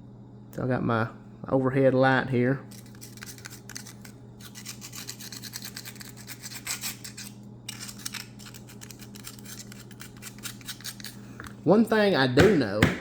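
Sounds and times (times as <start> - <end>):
metal pick scraping knife: 2.7 - 11.2.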